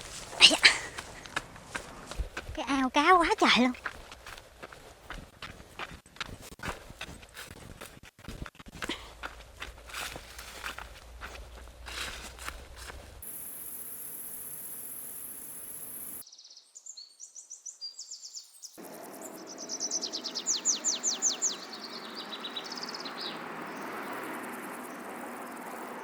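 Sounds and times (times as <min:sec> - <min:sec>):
high insect buzz: 0:12.1 - 0:16.2
birds chirping: 0:13.2 - 0:16.2, 0:18.0 - 0:24.2.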